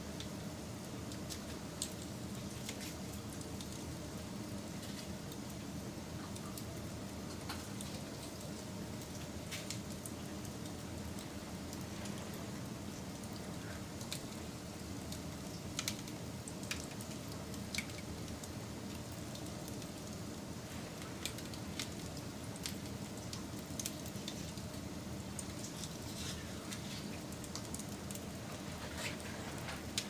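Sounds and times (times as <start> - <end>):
campfire crackling and hissing: 0.0 - 30.0.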